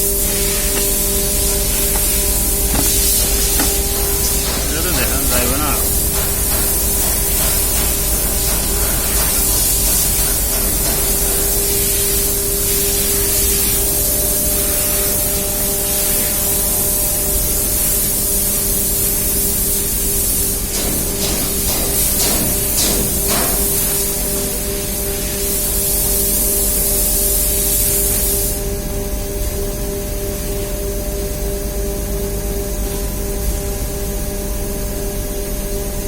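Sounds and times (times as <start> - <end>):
machinery hissing and humming: 0.0 - 36.0
faint knocks: 0.8 - 5.4.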